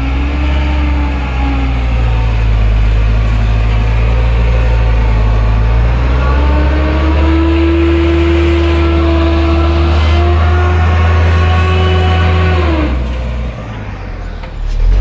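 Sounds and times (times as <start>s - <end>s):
heavy truck engine drone: 0.0s - 15.0s
high steady whine: 14.4s - 15.0s.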